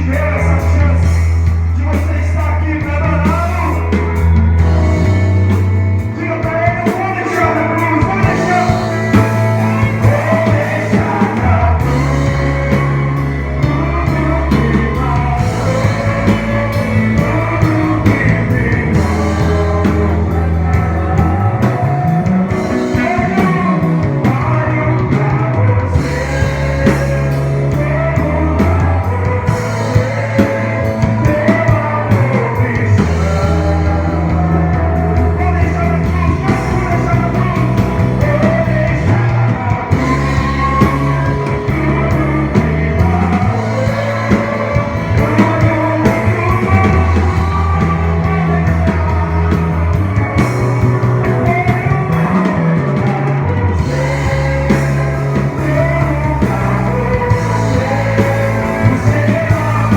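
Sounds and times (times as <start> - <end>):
person singing: 0.0 - 59.9
rock band playing: 0.0 - 59.9.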